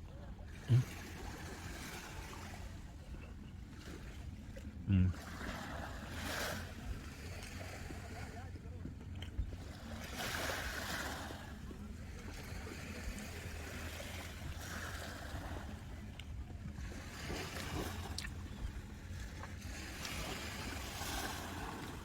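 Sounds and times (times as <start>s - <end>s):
sea waves washing onto beach: 19.6s - 22.0s.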